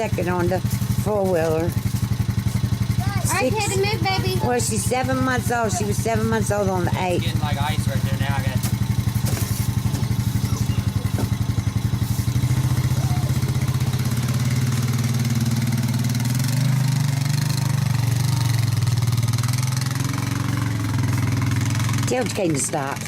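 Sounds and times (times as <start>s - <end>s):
quad bike engine running: 0.0s - 23.0s.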